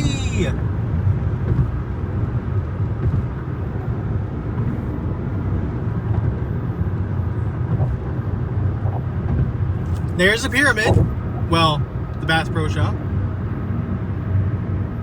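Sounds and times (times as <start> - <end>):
car driving interior rumble: 0.0 - 15.0.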